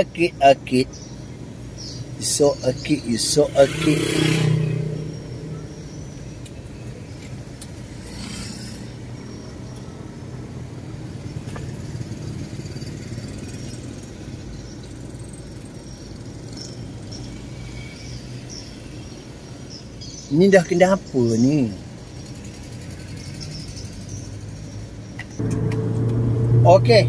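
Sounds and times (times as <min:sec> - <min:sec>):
car engine idling: 0:04.6 - 0:07.1, 0:25.4 - 0:27.0.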